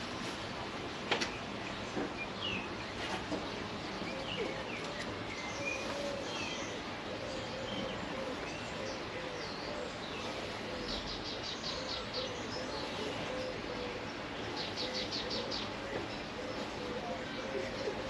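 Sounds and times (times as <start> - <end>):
bird cooing: 4.0 - 18.0.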